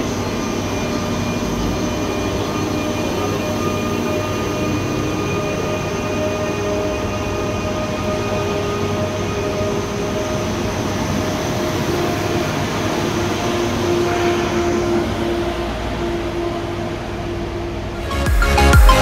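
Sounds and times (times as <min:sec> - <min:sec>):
electric train whine: 0:00.0 - 0:18.2
electronic dance music: 0:18.0 - 0:19.0.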